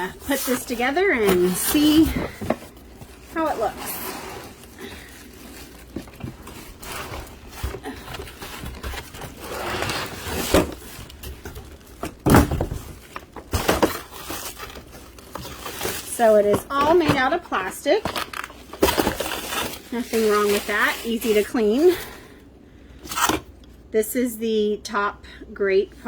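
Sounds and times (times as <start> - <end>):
plastic parts rustling and scraping: 0.0 - 22.2.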